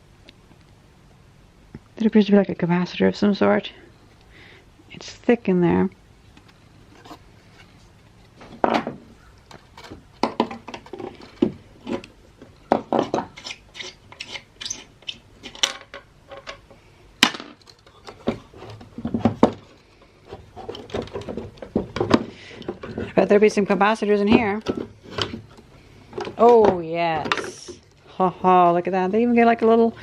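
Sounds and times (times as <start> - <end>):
plastic and metal parts handled: 6.3 - 23.4.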